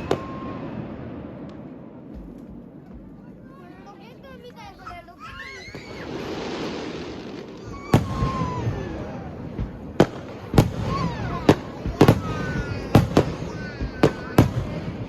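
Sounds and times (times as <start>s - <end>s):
firework bangs: 0.0s - 15.0s
firework rising hiss: 5.4s - 9.3s.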